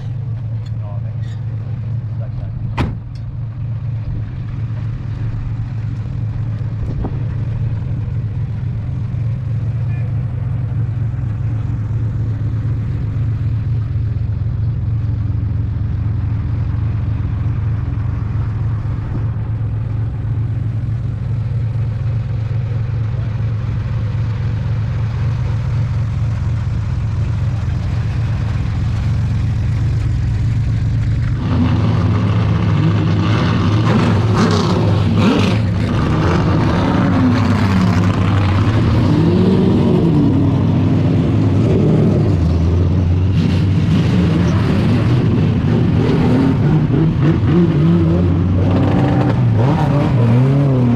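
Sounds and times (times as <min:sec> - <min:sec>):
race car engine: 0:00.0 - 0:50.9.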